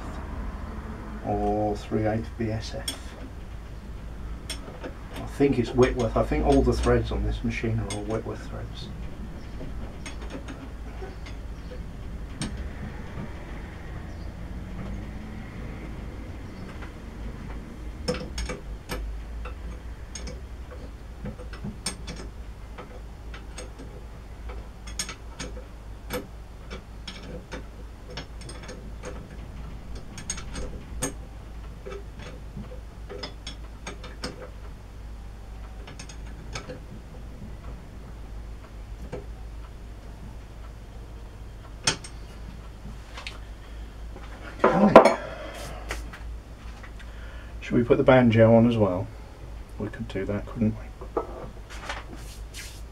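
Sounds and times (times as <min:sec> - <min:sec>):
low steady hum: 0:00.0 - 0:52.9
spanner clicking on metal: 0:18.0 - 0:31.2, 0:41.7 - 0:42.2.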